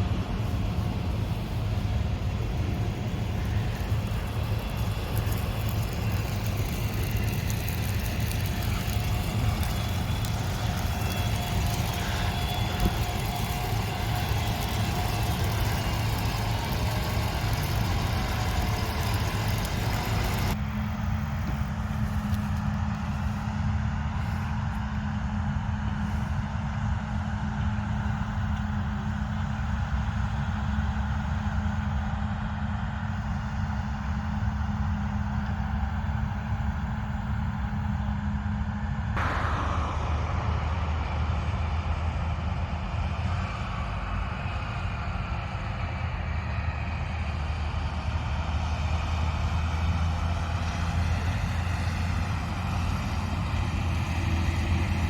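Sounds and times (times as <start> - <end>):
mechanical whir: 0.0 - 25.0, 39.2 - 43.3
strong low hum: 0.0 - 30.6, 35.6 - 46.2
harvest machine engine drone: 0.0 - 55.0.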